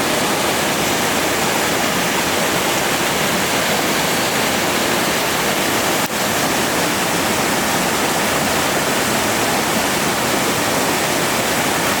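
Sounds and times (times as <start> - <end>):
waterfall pouring: 0.0 - 12.0.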